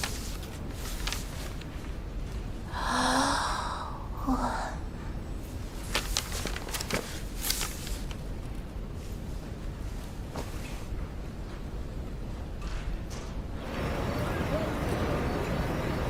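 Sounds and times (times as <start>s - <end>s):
person sighing: 2.7s - 5.0s.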